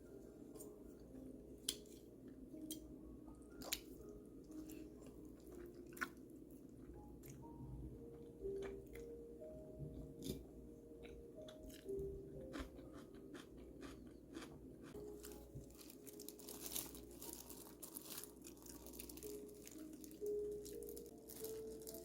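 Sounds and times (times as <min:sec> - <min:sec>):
faint steady background tones: 0:00.0 - 0:22.0
crunching and crackling: 0:11.4 - 0:22.0.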